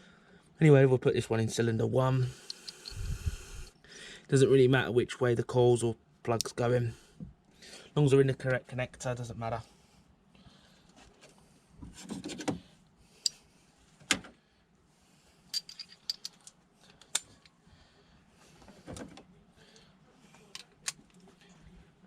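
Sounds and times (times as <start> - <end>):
metallic clatter of parts: 15.5 - 17.5.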